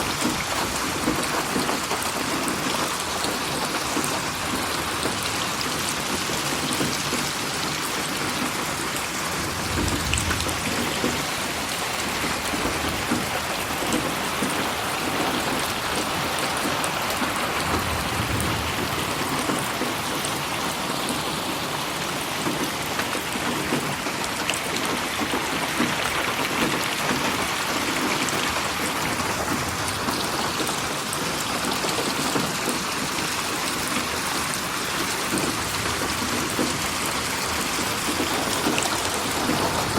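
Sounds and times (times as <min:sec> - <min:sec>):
dense rain pattering: 0:00.0 - 0:39.9
low rumbles: 0:09.4 - 0:11.4, 0:17.6 - 0:19.6.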